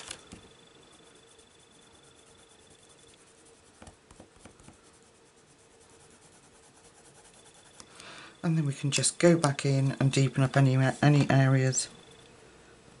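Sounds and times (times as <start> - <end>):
pencil scratching on paper: 0.8 - 7.8.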